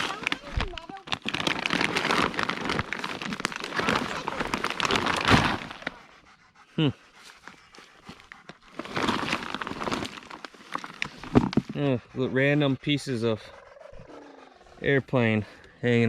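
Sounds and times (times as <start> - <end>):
rustling through dry leaves: 0.0 - 6.1, 8.7 - 11.7.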